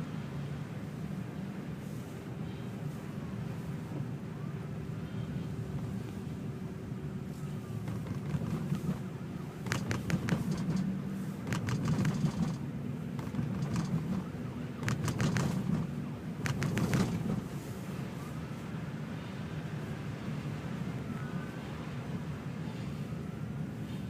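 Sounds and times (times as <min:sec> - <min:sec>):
low vehicle hum: 0:00.0 - 0:24.0
sharp clicks or crunches: 0:09.6 - 0:10.9, 0:11.5 - 0:12.6, 0:13.2 - 0:17.5.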